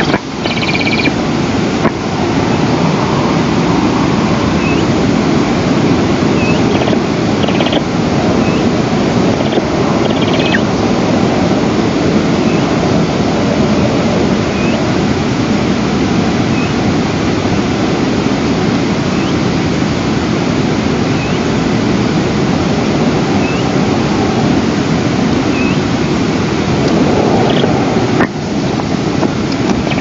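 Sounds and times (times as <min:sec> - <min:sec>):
faint high chirps: 0:00.0 - 0:01.2
wind rushing over microphone: 0:00.0 - 0:30.0.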